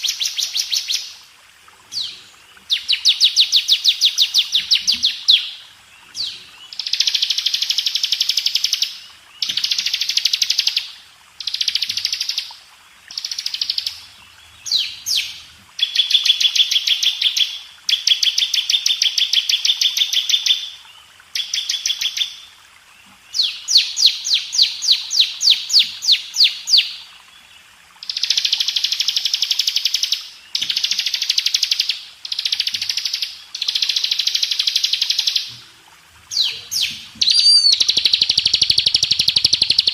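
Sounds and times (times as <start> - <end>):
prinia singing: 36.3 - 39.9.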